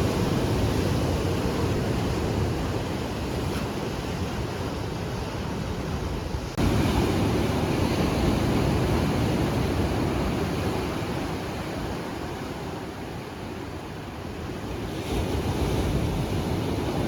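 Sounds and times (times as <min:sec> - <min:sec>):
ocean surf washing onto beach: 0:00.0 - 0:17.0
wind rumbling on microphone: 0:00.0 - 0:17.0.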